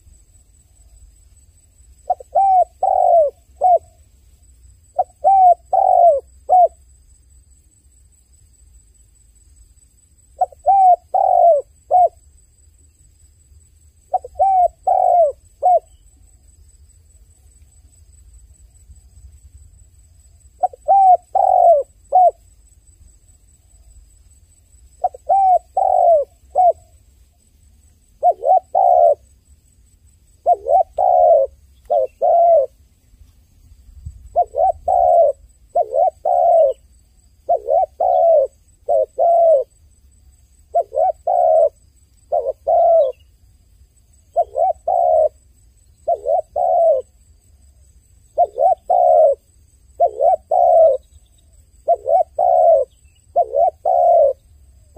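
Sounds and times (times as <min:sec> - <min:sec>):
dove cooing: 0:02.0 - 0:04.0, 0:04.9 - 0:06.8, 0:10.4 - 0:12.2, 0:14.1 - 0:16.0, 0:20.6 - 0:22.4, 0:25.0 - 0:27.0, 0:28.2 - 0:29.2, 0:30.4 - 0:32.8, 0:34.3 - 0:39.8, 0:40.7 - 0:43.2, 0:44.3 - 0:45.4, 0:46.0 - 0:47.2, 0:48.4 - 0:54.5.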